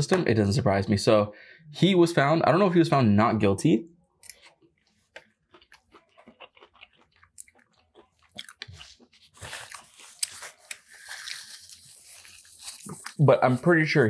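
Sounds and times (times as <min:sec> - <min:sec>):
close chewing with wet crunches: 0:04.2 - 0:13.2.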